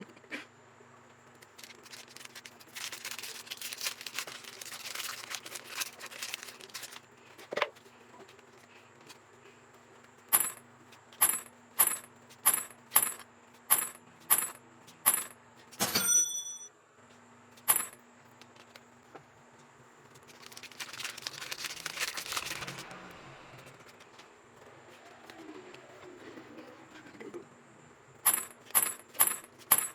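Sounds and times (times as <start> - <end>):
packaging crinkling: 1.4 - 7.1, 20.2 - 22.9
metallic clink: 11.2 - 16.7
sharp ringing clicks: 11.2 - 16.7.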